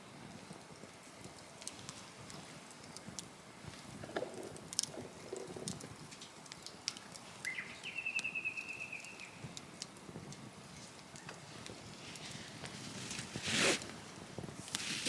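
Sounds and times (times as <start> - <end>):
faint clicks: 4.0 - 8.3
bird calling with trill: 7.5 - 9.4.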